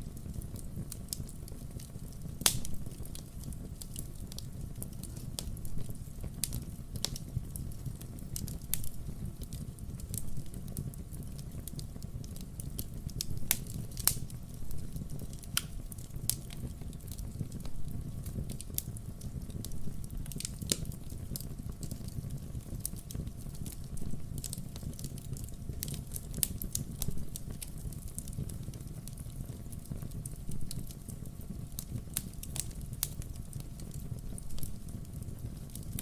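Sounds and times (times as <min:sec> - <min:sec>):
wood fire crackling and popping: 0:00.0 - 0:36.0.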